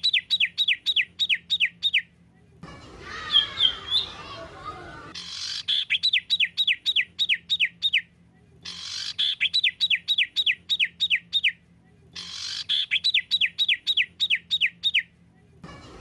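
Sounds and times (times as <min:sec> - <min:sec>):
songbird singing: 0:02.7 - 0:08.1.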